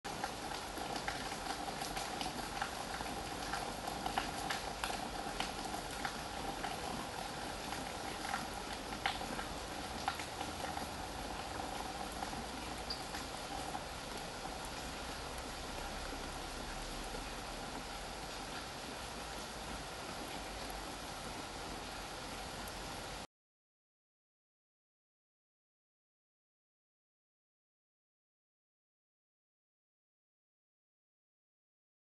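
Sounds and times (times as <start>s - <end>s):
steady rain: 0.1s - 23.3s.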